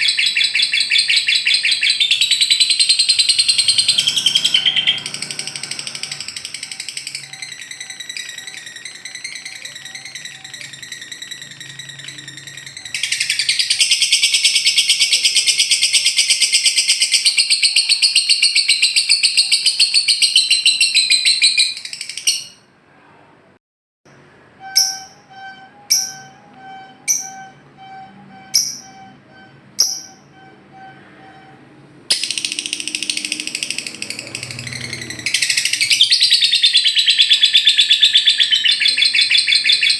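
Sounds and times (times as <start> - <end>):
sharp bird chirps: 0.0 - 22.7, 24.6 - 31.0, 32.1 - 39.9
bird rattling trill: 2.6 - 15.0
steady piping note: 24.5 - 35.3.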